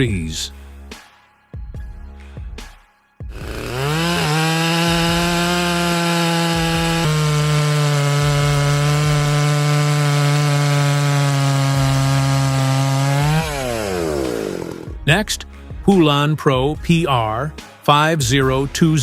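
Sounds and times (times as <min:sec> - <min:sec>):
chainsaw cutting wood: 0:03.3 - 0:15.0.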